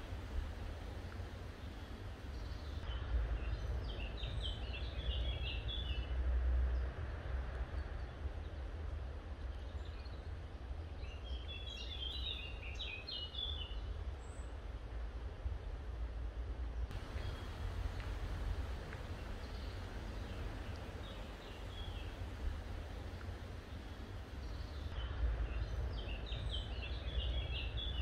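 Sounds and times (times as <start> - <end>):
birds chirping: 0.0 - 2.8, 16.9 - 28.0
steady low rumble: 0.0 - 5.4, 14.6 - 28.0.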